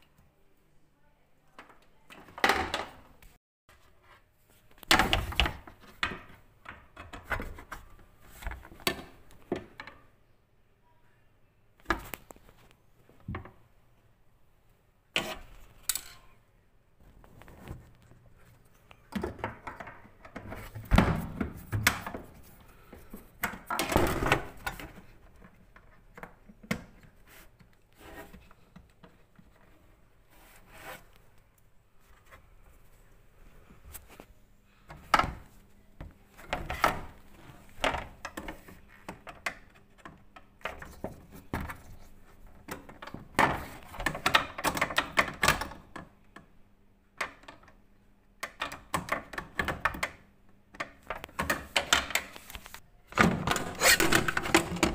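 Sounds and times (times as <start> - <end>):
dishwasher parts clicking and knocking: 53.2 - 54.9.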